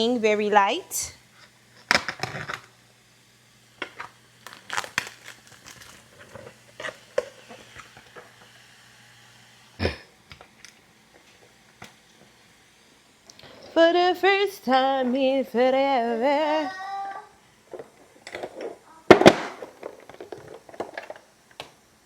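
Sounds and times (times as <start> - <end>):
plastic packaging crinkling: 3.9 - 7.5.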